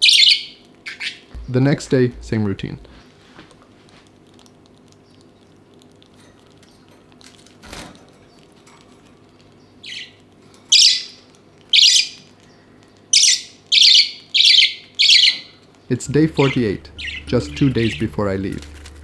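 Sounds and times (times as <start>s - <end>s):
budgerigars squawking: 0.0s - 1.5s, 10.7s - 11.1s, 13.2s - 15.5s, 16.1s - 19.0s.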